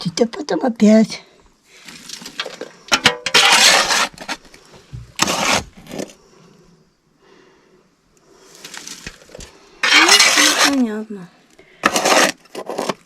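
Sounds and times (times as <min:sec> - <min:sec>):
metal scoop scraping ash: 0:01.8 - 0:04.4, 0:05.2 - 0:06.1, 0:08.6 - 0:11.1, 0:11.8 - 0:13.0.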